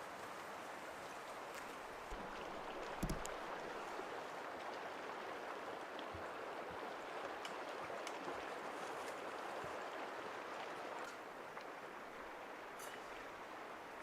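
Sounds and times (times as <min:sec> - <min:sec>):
lake waves lapping: 0:01.6 - 0:04.5
soft knocks: 0:02.8 - 0:03.4.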